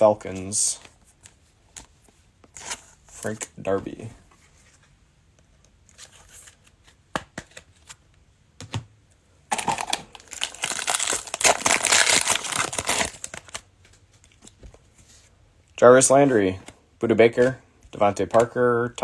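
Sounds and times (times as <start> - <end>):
cards clicking and tapping: 7.1 - 7.8, 18.2 - 18.6
foil wrapper tearing and crinkling: 9.5 - 13.6.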